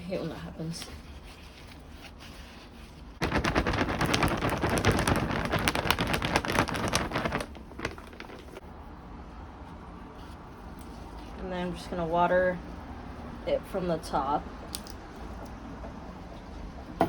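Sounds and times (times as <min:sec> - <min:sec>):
bag rustling: 0:03.2 - 0:08.6
potting soil pouring into pot: 0:03.2 - 0:08.6.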